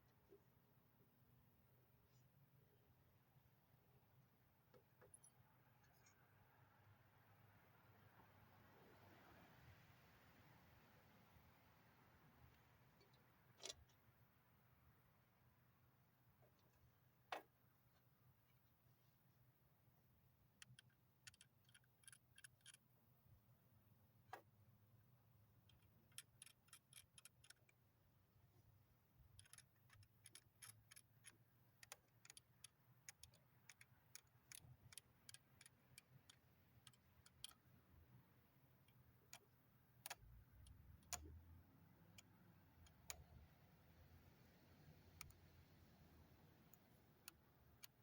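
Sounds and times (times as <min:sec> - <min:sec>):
small plastic parts clicking: 0:20.6 - 0:22.8, 0:25.6 - 0:27.8, 0:29.2 - 0:37.8.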